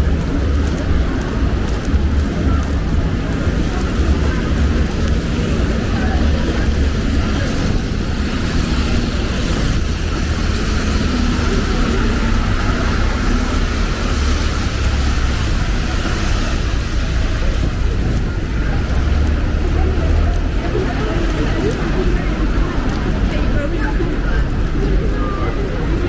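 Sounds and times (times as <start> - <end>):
traffic on wet road: 0.0 - 26.0.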